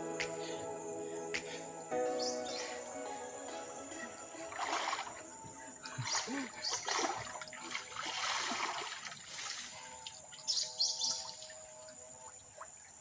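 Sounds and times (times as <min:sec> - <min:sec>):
faint background music: 0:00.0 - 0:07.4
water splashing: 0:01.3 - 0:10.1.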